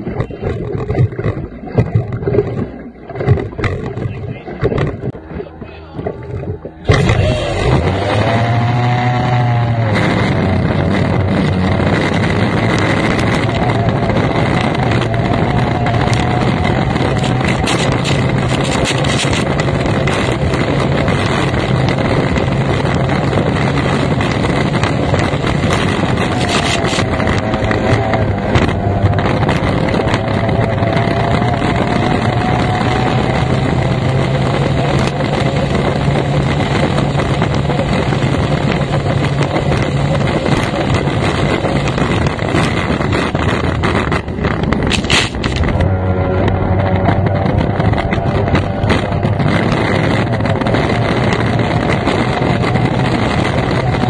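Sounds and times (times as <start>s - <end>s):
powerboat engine running hard: 0.0s - 54.0s
water noise: 0.0s - 54.0s
wind on microphone: 0.0s - 54.0s.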